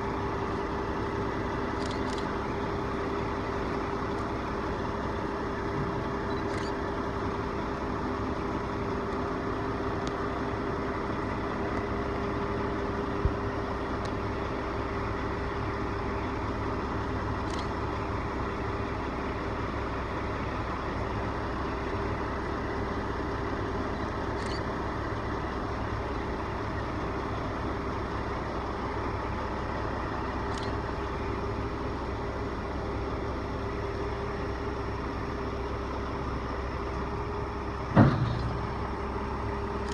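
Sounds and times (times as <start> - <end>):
large engine idling: 0.0 - 39.9
sharp click: 1.8 - 2.3, 24.4 - 24.7.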